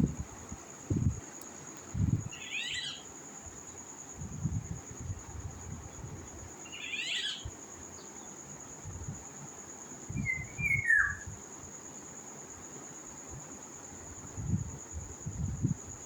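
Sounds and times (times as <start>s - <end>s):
bird calling: 2.4s - 3.0s, 6.7s - 7.4s, 10.2s - 11.3s.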